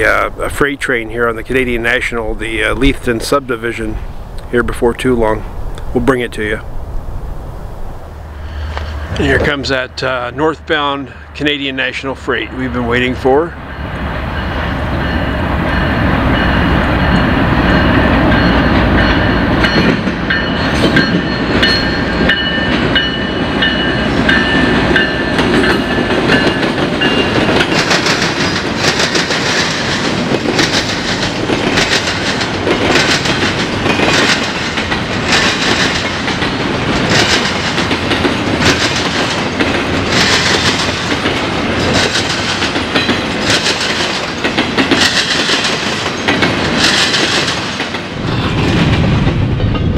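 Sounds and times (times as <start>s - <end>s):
diesel locomotives rumbling: 0.0s - 49.9s
train wheels clacking over crossing: 9.7s - 49.9s
steady high ringing tones: 12.9s - 27.7s.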